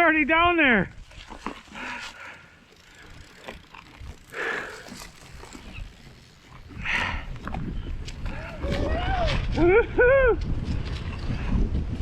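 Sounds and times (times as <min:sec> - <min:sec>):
bike rattles and clicks: 0:00.2 - 0:12.0
wind on camera: 0:03.4 - 0:12.0.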